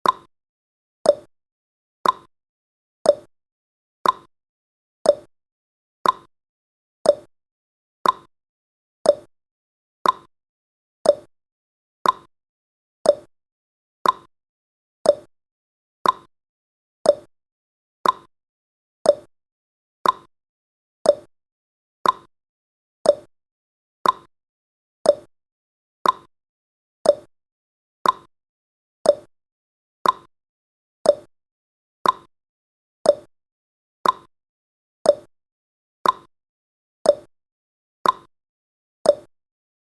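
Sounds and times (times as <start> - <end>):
clock ticking: 2.0 - 2.3, 6.0 - 6.3, 8.0 - 8.3, 10.0 - 10.3, 12.0 - 12.3, 14.0 - 14.3, 15.1 - 15.3, 16.0 - 16.3, 18.0 - 18.3, 20.0 - 20.3, 21.1 - 21.3, 22.0 - 22.3, 24.0 - 24.3, 25.1 - 25.3, 26.0 - 26.3, 27.1 - 27.3, 28.0 - 28.3, 29.1 - 29.3, 30.0 - 30.3, 31.1 - 31.3, 32.0 - 32.3, 34.0 - 34.3, 36.0 - 36.3, 38.0 - 38.3.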